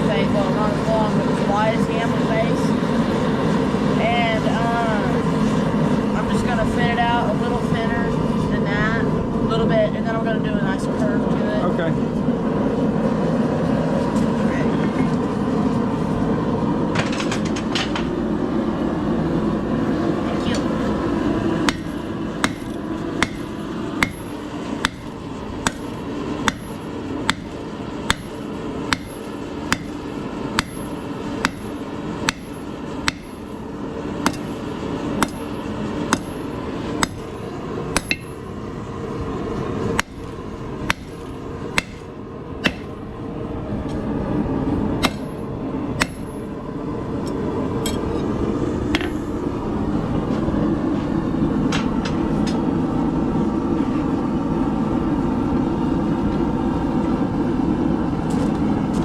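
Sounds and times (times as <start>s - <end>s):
steady rushing roar: 0.0s - 59.0s
hammer striking steel on anvil: 21.7s - 33.5s, 34.2s - 34.6s, 35.2s - 37.4s, 38.0s - 38.4s, 40.0s - 40.3s, 40.9s - 43.0s, 45.0s - 45.4s, 46.0s - 46.5s, 47.8s - 48.2s.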